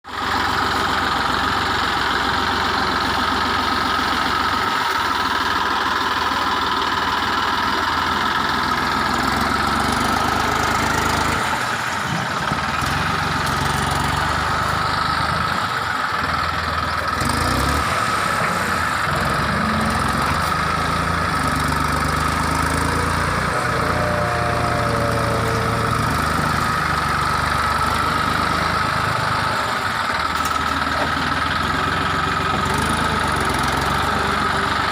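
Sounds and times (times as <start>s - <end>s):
tractor engine running: 0.1s - 34.9s.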